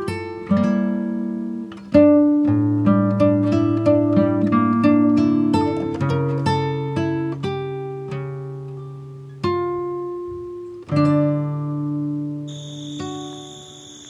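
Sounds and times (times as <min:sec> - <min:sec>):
acoustic guitar music: 0:00.0 - 0:14.0
cricket trill: 0:12.5 - 0:14.0.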